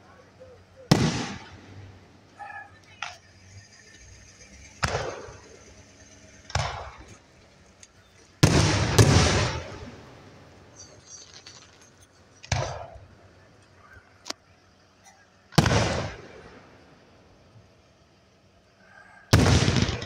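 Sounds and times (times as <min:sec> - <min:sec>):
faint firework crackling: 0:00.7 - 0:13.8, 0:19.3 - 0:20.0
firework booms: 0:00.9 - 0:01.9, 0:04.8 - 0:05.5, 0:06.5 - 0:07.2, 0:08.4 - 0:10.2, 0:12.4 - 0:13.0, 0:15.6 - 0:16.6, 0:19.3 - 0:20.0.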